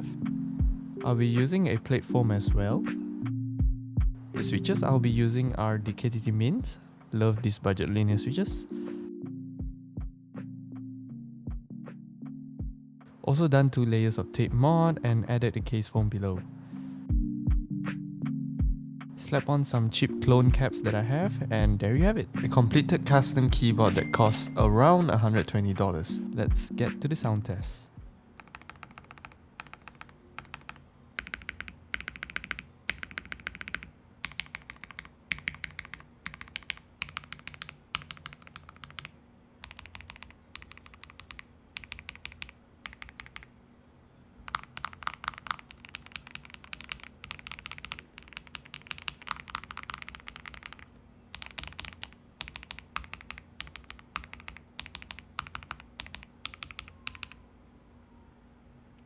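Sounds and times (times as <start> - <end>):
keyboard typing: 22.5 - 24.8, 28.4 - 43.6, 44.5 - 57.5.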